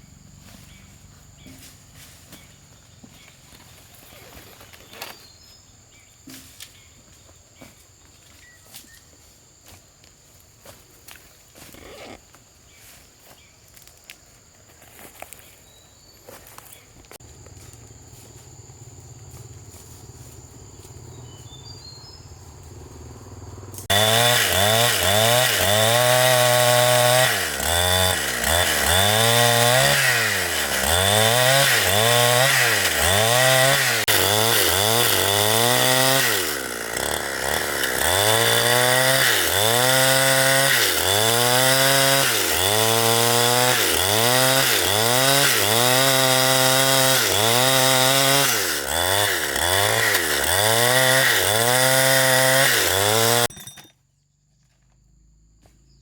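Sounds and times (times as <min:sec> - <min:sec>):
chainsaw cutting wood: 0:23.7 - 0:53.9.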